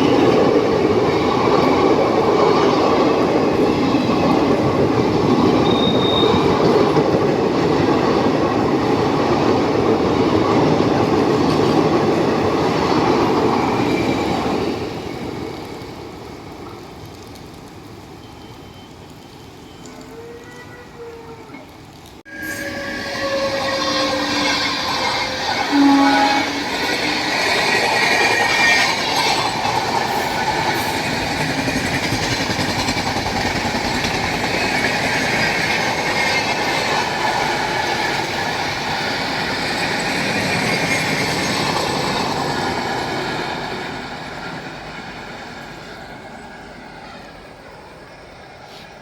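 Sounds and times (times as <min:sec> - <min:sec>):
train wheels rushing on rails: 0:00.0 - 0:49.0
train horn: 0:19.9 - 0:21.6, 0:22.3 - 0:27.3.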